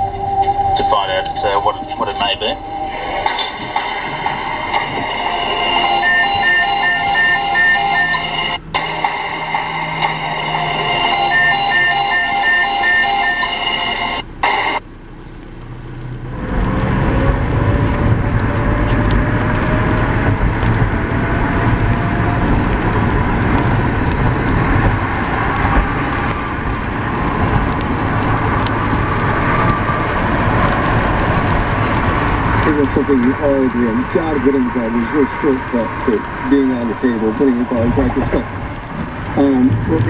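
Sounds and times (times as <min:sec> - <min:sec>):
music: 0:00.0 - 0:14.2
low road rumble: 0:00.0 - 0:40.0
tyre and rain noise: 0:14.3 - 0:40.0.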